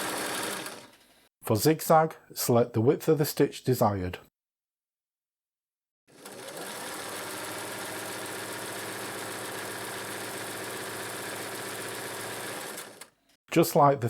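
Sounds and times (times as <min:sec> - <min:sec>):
sewing machine stitching: 0:00.0 - 0:01.1, 0:06.1 - 0:13.2.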